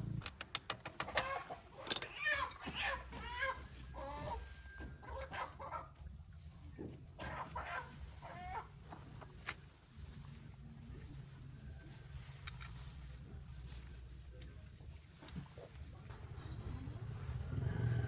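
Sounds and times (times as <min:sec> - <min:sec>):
chickens clucking: 0:00.0 - 0:09.4
small birds chirping: 0:00.1 - 0:18.0.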